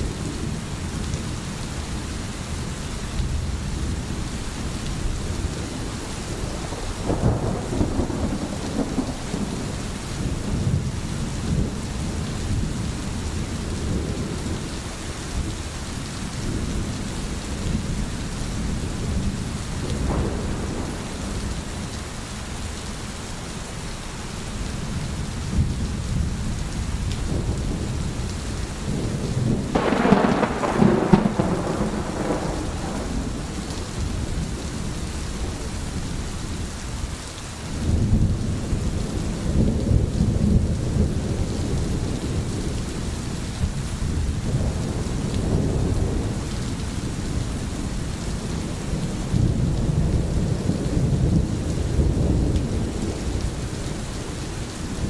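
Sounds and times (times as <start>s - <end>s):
steady rain: 0.0s - 55.0s
rolling thunder: 5.4s - 14.6s, 16.4s - 22.1s, 25.5s - 36.1s, 37.8s - 55.0s
sharp thunderclap: 19.9s - 21.7s, 29.0s - 34.2s.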